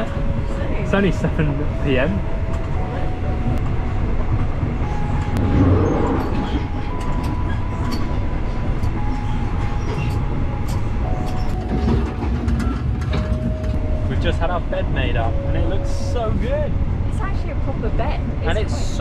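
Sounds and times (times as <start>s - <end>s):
thin whining tones: 0.0s - 19.0s
train carriage rumble: 0.0s - 19.0s
sharp clicks and rattles: 9.8s - 15.1s.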